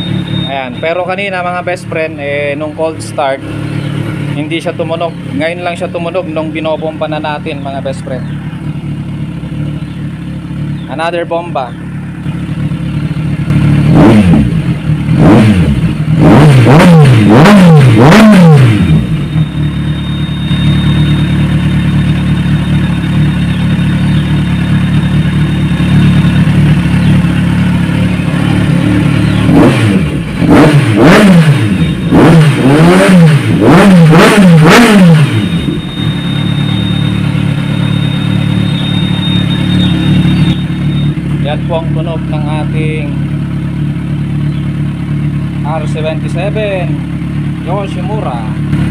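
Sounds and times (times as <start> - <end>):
motorcycle engine idling and revving: 0.0 - 48.9.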